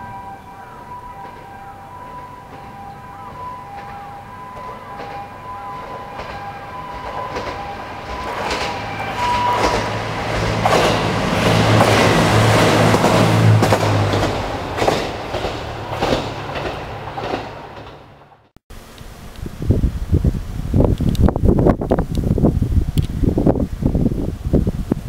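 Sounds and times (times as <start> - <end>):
level crossing warning bell: 0.0 - 14.1
diesel train engine drone: 0.0 - 23.9
train wheels clacking on rail joints: 1.2 - 18.5.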